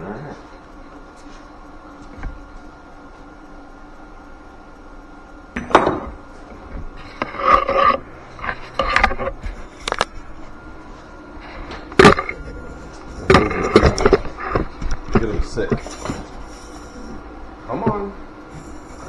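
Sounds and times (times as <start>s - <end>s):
low steady hum: 0.0s - 19.0s
metal tools clanking: 5.6s - 19.0s.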